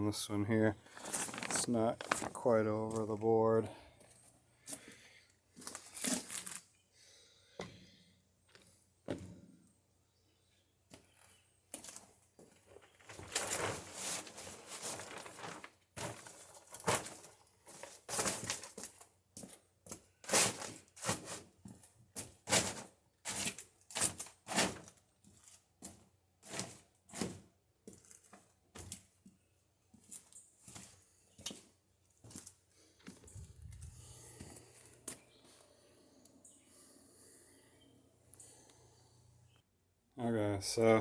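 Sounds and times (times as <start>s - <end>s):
tarp crinkling and rustling: 0.8s - 3.3s, 5.6s - 6.6s, 11.8s - 19.6s, 20.2s - 21.6s, 22.2s - 25.6s, 26.4s - 29.0s
footstep crunches: 0.8s - 6.7s, 29.9s - 35.8s.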